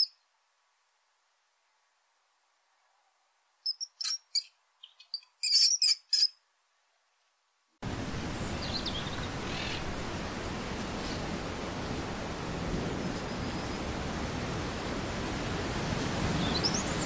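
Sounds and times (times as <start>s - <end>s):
bird chirps: 0.0s - 0.2s, 3.6s - 6.4s
steady hiss: 6.5s - 17.0s.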